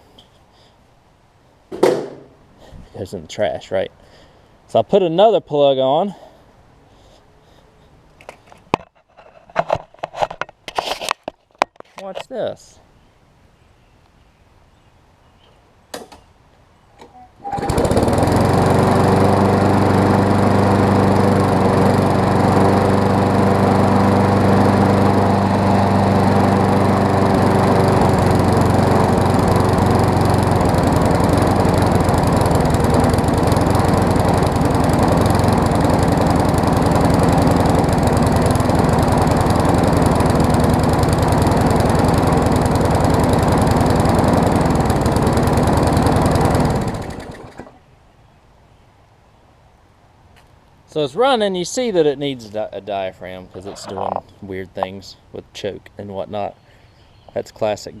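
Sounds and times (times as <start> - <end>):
lawn mower engine running: 1.7 - 2.4, 17.4 - 47.8, 53.5 - 54.9.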